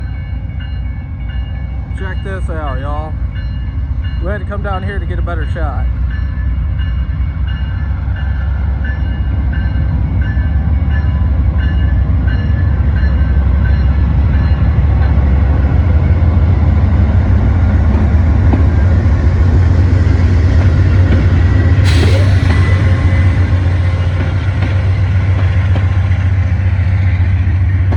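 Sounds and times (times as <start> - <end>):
train bell ringing: 0.0 - 16.4, 21.4 - 25.9
diesel locomotive rumble: 0.0 - 27.9.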